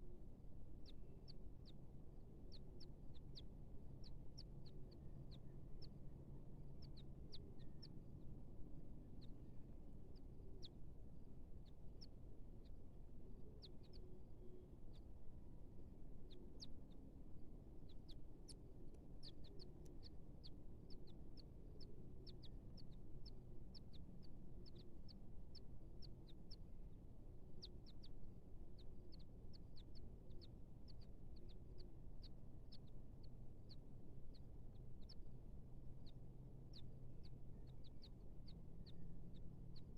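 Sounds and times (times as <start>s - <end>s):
soft low bird calls: 0.0s - 39.9s.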